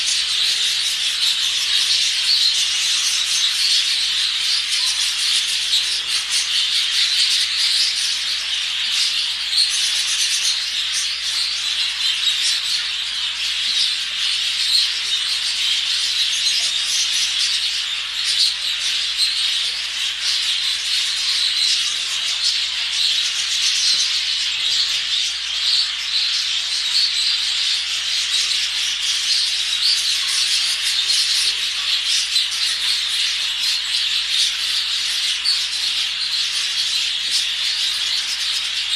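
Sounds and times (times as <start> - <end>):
budgerigars chattering and chirping: 0.0 - 38.9.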